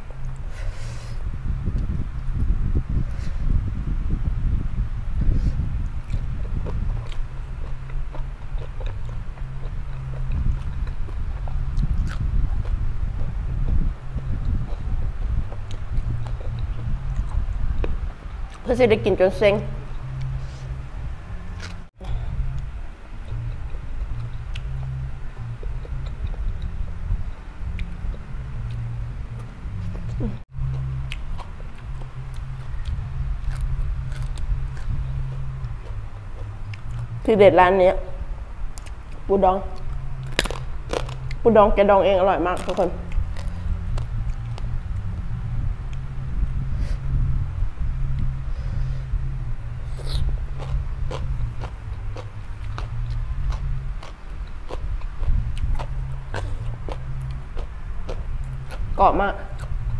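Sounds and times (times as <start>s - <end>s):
low rumble and hum: 0.0s - 59.9s
chewing with crisp crunches: 5.3s - 18.7s, 21.5s - 37.2s, 38.7s - 41.4s, 42.6s - 45.1s, 48.1s - 59.9s
wet mouth clicks: 49.9s - 58.9s.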